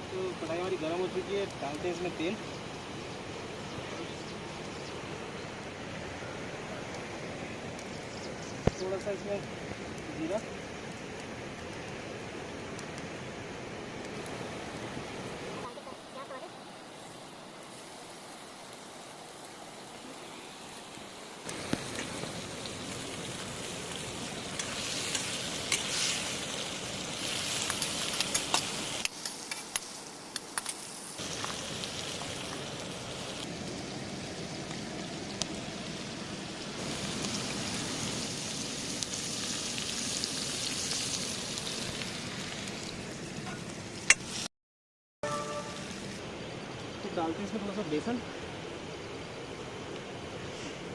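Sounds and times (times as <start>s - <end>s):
sharp pops and crackles: 7.7s - 13.2s, 14.0s - 14.9s, 20.9s - 33.8s
seeds sizzling in hot oil: 14.1s - 44.5s, 45.2s - 46.3s.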